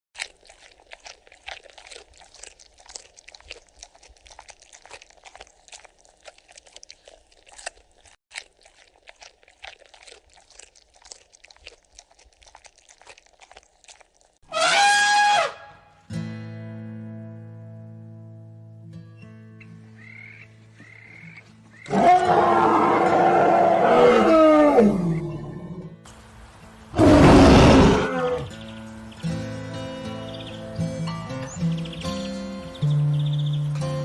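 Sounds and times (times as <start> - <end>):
crunching chewing: 0.2 - 14.4, 20.0 - 26.3
loud animal call falling in pitch: 14.5 - 15.7.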